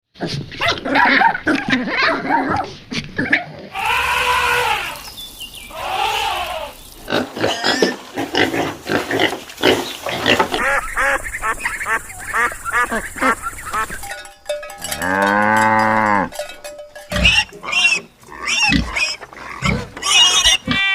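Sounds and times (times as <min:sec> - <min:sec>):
pigs squealing: 0:00.6 - 0:05.1, 0:05.7 - 0:14.1, 0:17.1 - 0:20.9.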